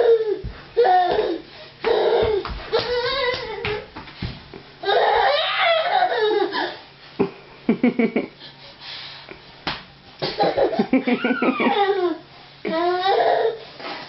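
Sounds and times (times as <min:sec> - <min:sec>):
baby crying: 0:00.0 - 0:03.8, 0:04.8 - 0:06.8, 0:11.3 - 0:13.6.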